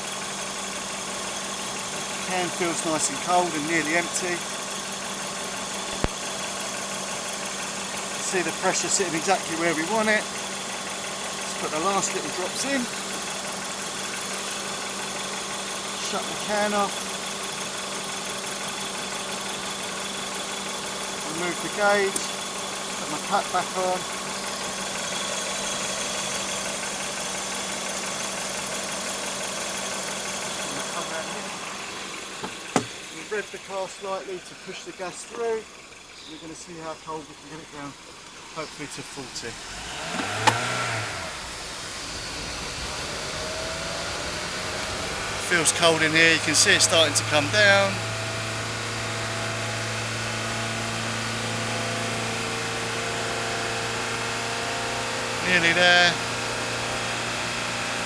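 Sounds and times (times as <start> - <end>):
car engine idling: 0.0 - 58.0
blower fan running: 38.0 - 48.5.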